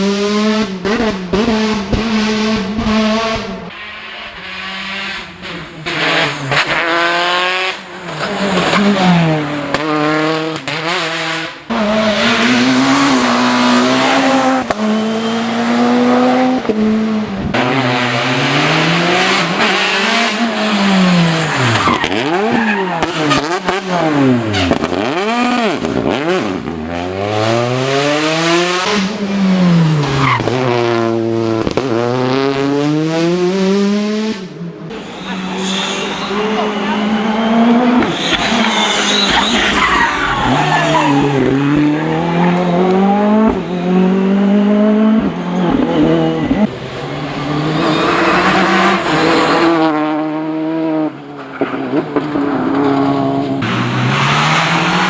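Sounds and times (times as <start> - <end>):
rally car engines revving: 0.0 - 55.0
tyre squeal: 12.4 - 16.4, 19.5 - 25.2, 34.9 - 44.1, 45.4 - 49.8.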